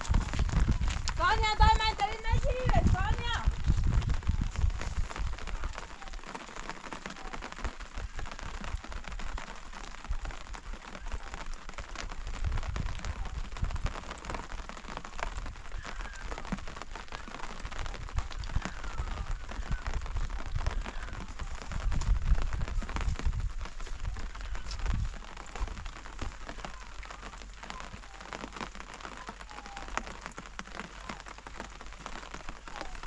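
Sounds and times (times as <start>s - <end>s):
low rumbling: 0.0s - 6.2s
rain falling: 0.0s - 33.0s.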